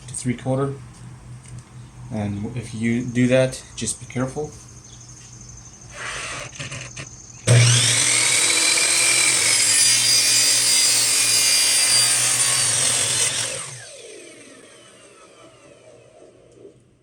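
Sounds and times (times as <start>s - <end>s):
miter saw cutting plastic pipe: 5.9s - 16.8s
saw blade winding down: 6.0s - 16.7s.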